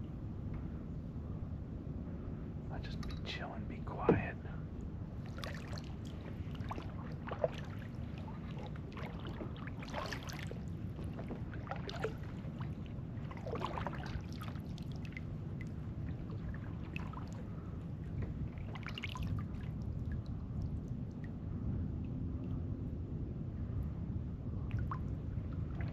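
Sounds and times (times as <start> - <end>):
water lapping against kayak: 5.2 - 21.2, 24.6 - 25.9.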